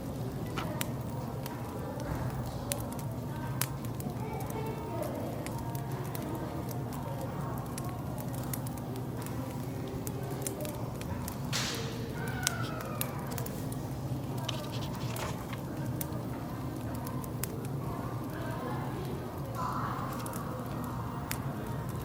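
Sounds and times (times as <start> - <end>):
murmuring voices: 0.0 - 22.0
wood fire crackling and popping: 0.0 - 22.0.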